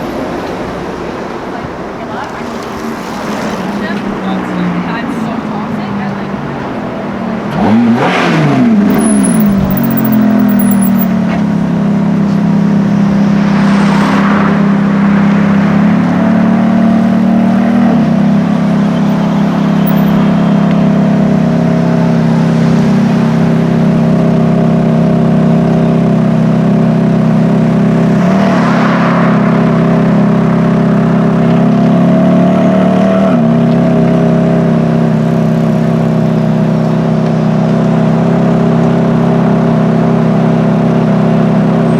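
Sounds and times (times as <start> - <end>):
cars passing: 0.0 - 11.1, 12.5 - 23.8, 27.5 - 32.1.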